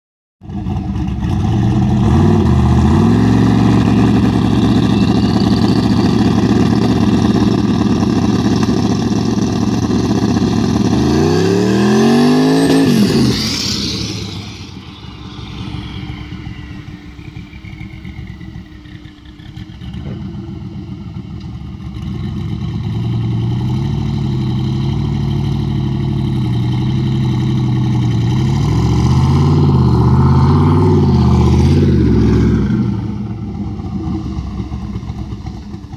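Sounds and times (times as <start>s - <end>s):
car engine revving: 0.5s - 35.9s.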